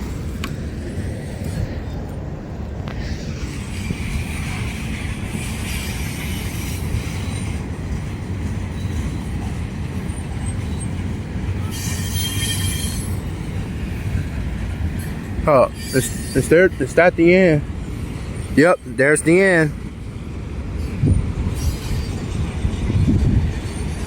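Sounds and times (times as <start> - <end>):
train wheels rumbling on rail: 0.0 - 24.0
high-pitched wheel squeal: 3.7 - 7.6, 8.7 - 9.4, 11.6 - 13.3, 15.0 - 16.6, 20.8 - 22.5.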